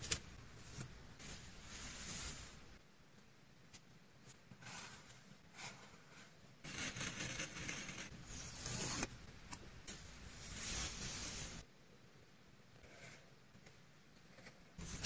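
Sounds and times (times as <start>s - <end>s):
paper rustling and scraping: 14.8s - 15.0s.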